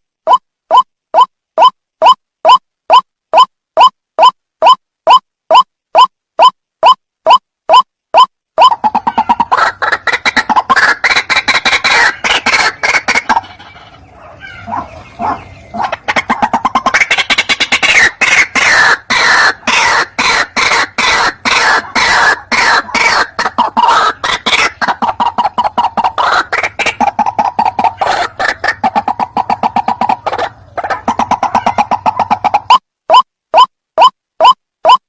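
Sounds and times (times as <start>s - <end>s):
bird making harsh croaking calls: 8.6s - 32.8s.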